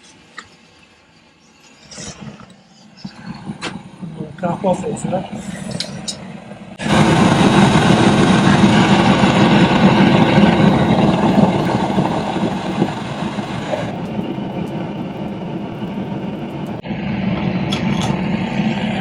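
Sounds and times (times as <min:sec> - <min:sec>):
gas torch flame rushing: 0:06.8 - 0:16.8.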